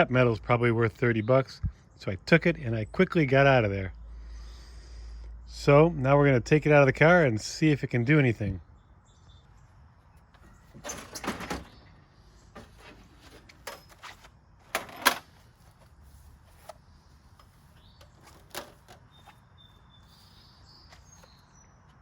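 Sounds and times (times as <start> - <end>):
scraping rustle: 12.5 - 19.4.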